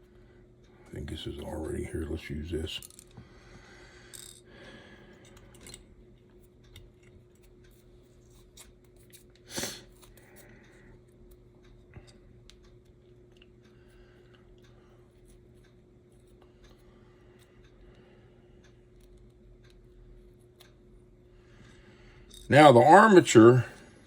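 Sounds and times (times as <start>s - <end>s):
faint steady hum: 0.0s - 24.0s
small parts clicking and tapping: 2.8s - 3.2s, 4.0s - 4.5s, 5.1s - 17.9s.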